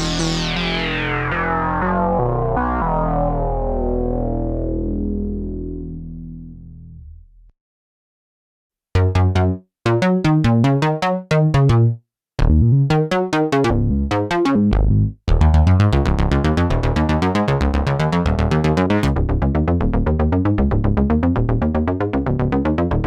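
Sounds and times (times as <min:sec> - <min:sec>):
synthesizer sequence: 0:00.0 - 0:06.2.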